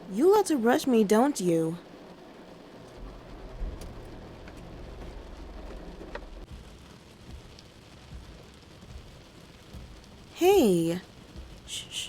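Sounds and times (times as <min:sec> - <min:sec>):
rain pattering on car roof: 0:00.0 - 0:11.7
low hum: 0:01.8 - 0:06.5.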